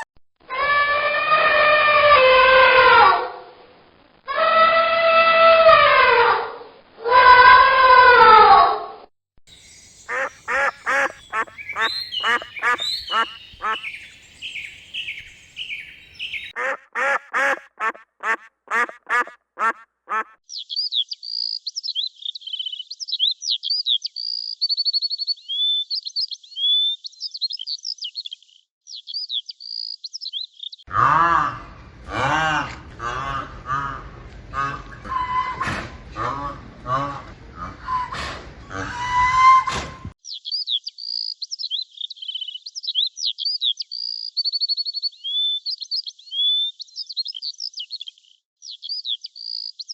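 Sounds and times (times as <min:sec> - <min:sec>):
birds chirping and trilling: 0:09.5 - 0:17.2, 0:25.4 - 0:30.8
ducks quacking: 0:10.0 - 0:20.4.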